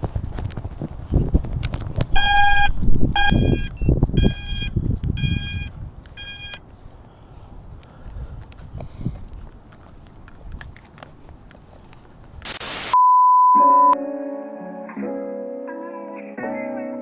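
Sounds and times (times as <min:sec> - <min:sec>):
electronic beeper beeping: 0:02.2 - 0:06.6
footsteps: 0:06.6 - 0:12.6.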